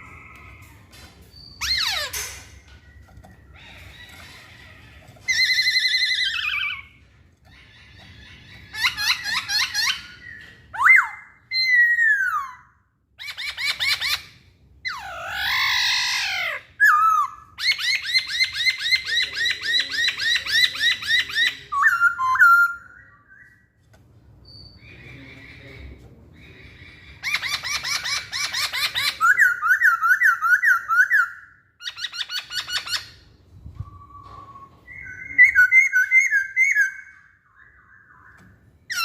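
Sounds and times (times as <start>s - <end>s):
bird singing whistled phrases: 33.8s - 39.0s.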